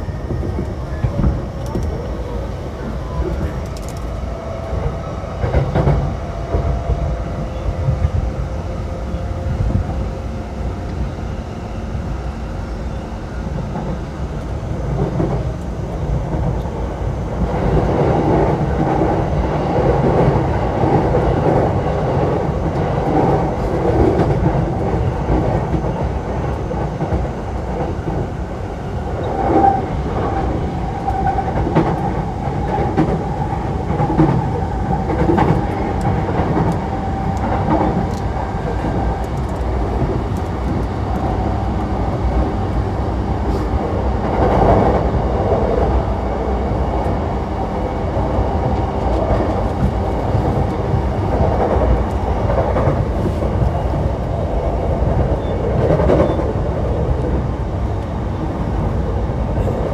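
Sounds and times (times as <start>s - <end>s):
rail-joint clacks: 0.0s - 8.3s, 29.1s - 46.0s, 48.2s - 58.1s
train wheels rumbling on rails: 0.0s - 59.9s.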